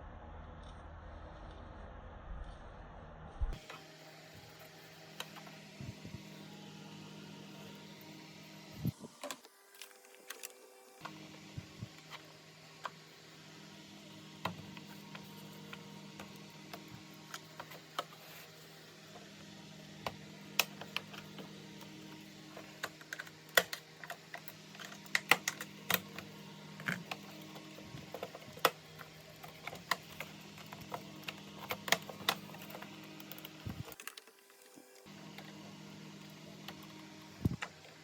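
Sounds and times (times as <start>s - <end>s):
low hum: 0.0s - 9.2s
plastic parts and tools clicking: 9.2s - 11.1s, 22.5s - 35.5s.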